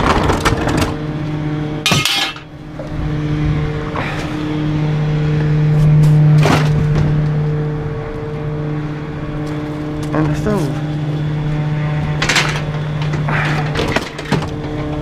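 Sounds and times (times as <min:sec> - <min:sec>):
garbage truck engine humming: 0:00.0 - 0:15.0
metal clanks: 0:01.8 - 0:02.5.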